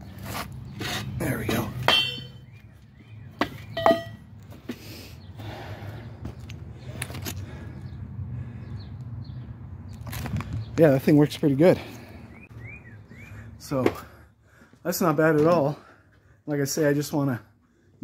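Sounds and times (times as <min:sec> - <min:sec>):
scrap steel clinking and knocking: 0:01.8 - 0:02.4, 0:03.7 - 0:04.2.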